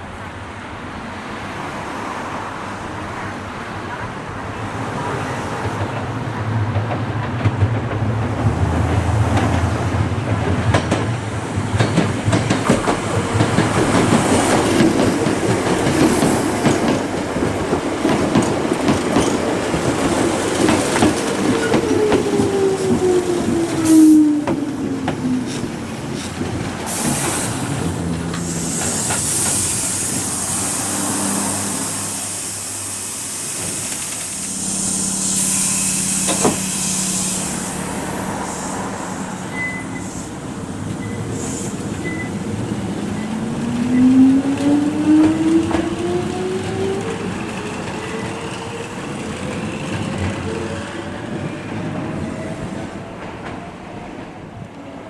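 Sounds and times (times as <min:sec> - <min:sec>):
air hissing: 0:20.2 - 0:42.4
electric train motor whine: 0:27.4 - 0:40.6.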